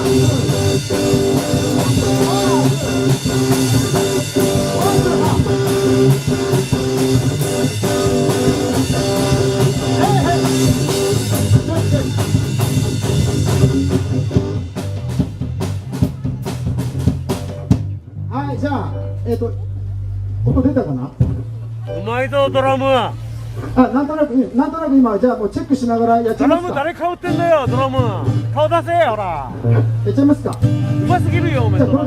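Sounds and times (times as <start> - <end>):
drum kit playing: 0.0 - 18.1, 21.2 - 23.8, 26.3 - 32.0
live rock band playing: 0.0 - 18.2, 21.2 - 23.8, 26.3 - 30.0, 30.6 - 32.0.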